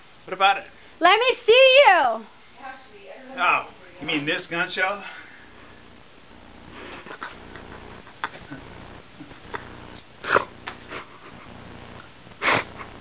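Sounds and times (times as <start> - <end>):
faint room noise: 0.0 - 13.0
person blowing breath: 6.7 - 7.3.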